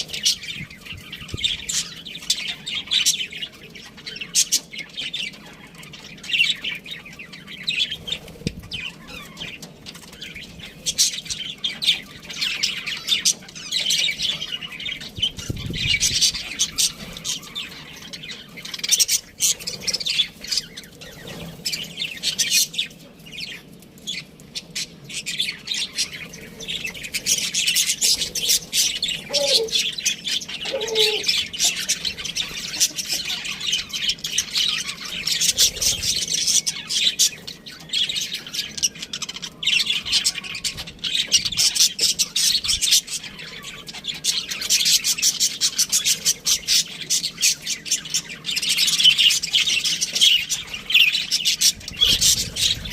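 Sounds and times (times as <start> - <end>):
budgerigars chirping: 24.6 - 52.9.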